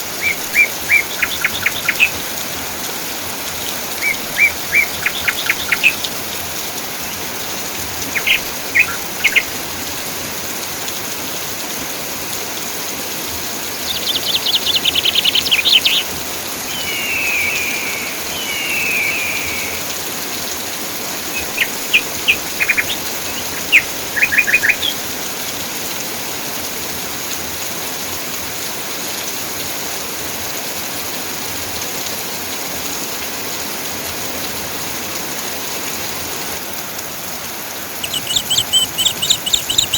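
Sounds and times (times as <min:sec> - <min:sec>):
steady rain falling: 0:00.0 - 0:39.9
birds chirping and trilling: 0:00.1 - 0:02.3, 0:03.5 - 0:09.7, 0:13.6 - 0:25.2, 0:37.9 - 0:39.9
falling whistled bird calls: 0:00.2 - 0:02.2, 0:04.0 - 0:06.1, 0:08.0 - 0:09.6, 0:13.7 - 0:20.4, 0:21.3 - 0:25.1, 0:38.0 - 0:39.9.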